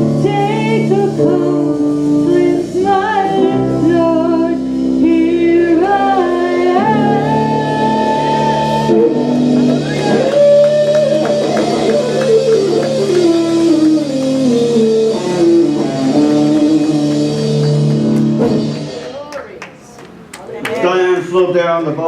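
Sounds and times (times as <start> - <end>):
person singing: 0.0 - 9.4
guitar chords: 0.0 - 19.3.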